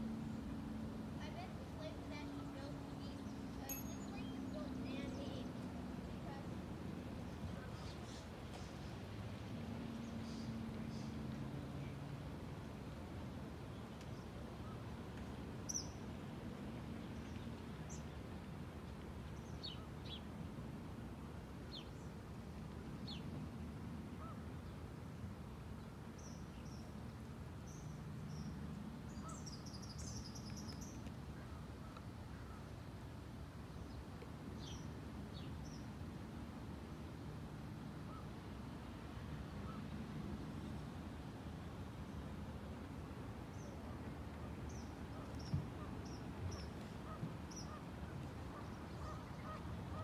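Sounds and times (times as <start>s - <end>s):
low outdoor rumble: 0.0s - 50.0s
wild birds chirping: 9.8s - 12.1s, 15.7s - 16.1s, 27.6s - 32.8s, 39.5s - 40.8s, 43.0s - 50.0s.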